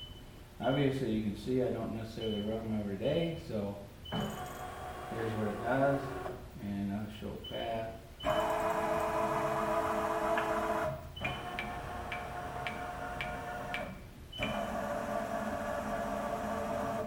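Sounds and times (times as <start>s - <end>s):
servo drives whining: 8.2s - 17.0s.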